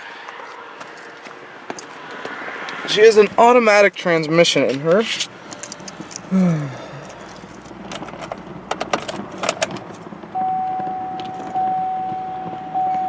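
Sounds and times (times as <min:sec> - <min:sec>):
keys jangling and clicking: 0:05.5 - 0:06.3
dashboard warning chime: 0:10.4 - 0:13.0.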